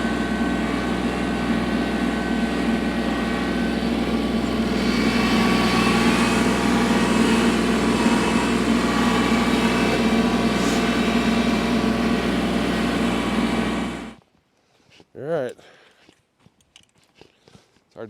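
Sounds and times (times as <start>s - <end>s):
tractor diesel engine running: 0.0s - 14.2s.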